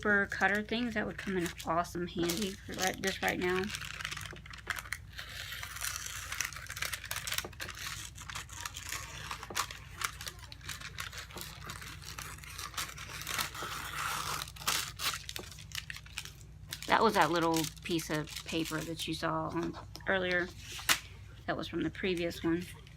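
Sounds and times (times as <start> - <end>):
paper crinkling and rustling: 0.3 - 21.2
scissors cutting paper: 1.3 - 15.5.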